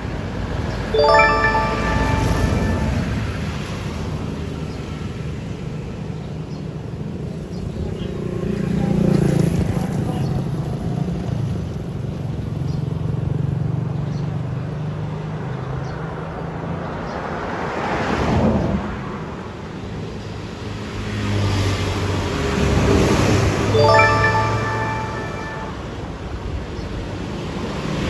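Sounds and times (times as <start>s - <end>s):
vehicles passing with tyre noise: 6.5s - 23.6s.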